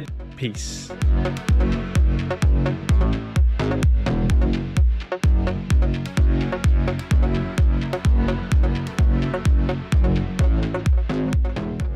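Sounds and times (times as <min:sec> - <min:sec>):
electronic dance music: 0:00.0 - 0:11.9.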